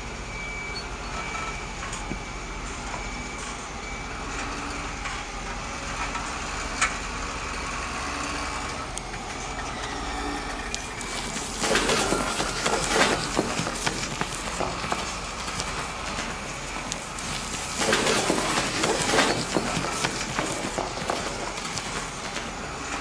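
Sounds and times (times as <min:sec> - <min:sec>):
small electric motors running: 0:10.0 - 0:23.0
loose material pouring rattle: 0:10.7 - 0:22.8.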